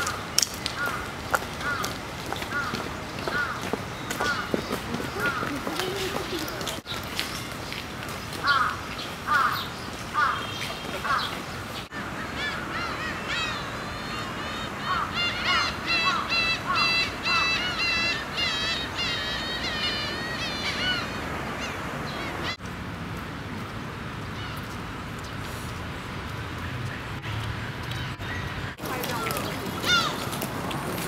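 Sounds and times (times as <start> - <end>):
flock of birds chattering: 0.0 - 22.6, 28.0 - 31.0.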